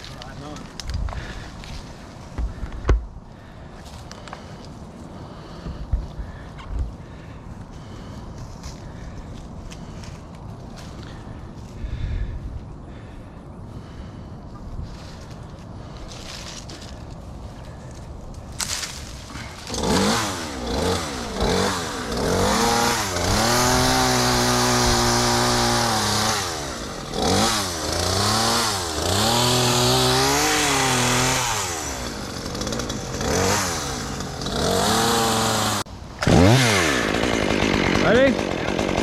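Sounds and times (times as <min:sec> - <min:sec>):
chainsaw revving: 0:19.2 - 0:39.0.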